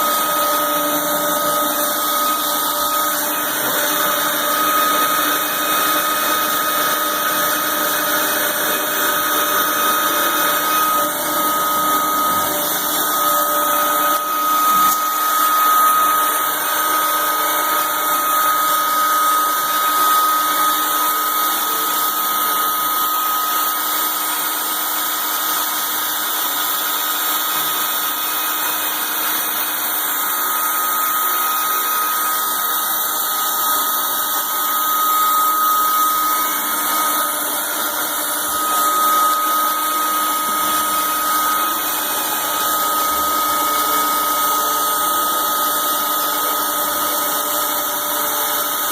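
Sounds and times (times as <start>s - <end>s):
router spindle high whine: 0.0s - 48.9s.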